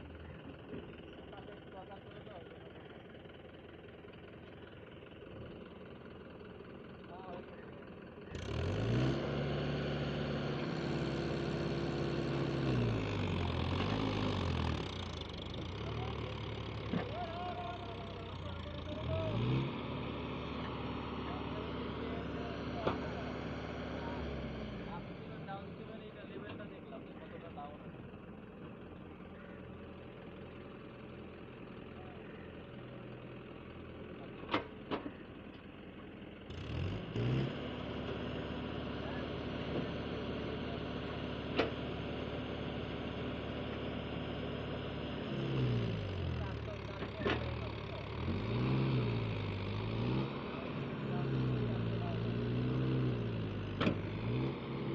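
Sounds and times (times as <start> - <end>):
diesel engine revving: 6.6 - 35.0, 35.7 - 54.9.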